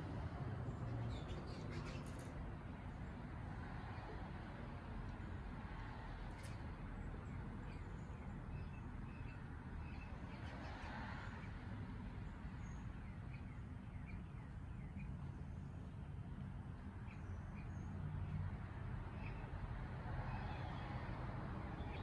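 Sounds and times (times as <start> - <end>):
small birds chirping: 0.6 - 4.2, 6.3 - 19.6, 21.7 - 22.0.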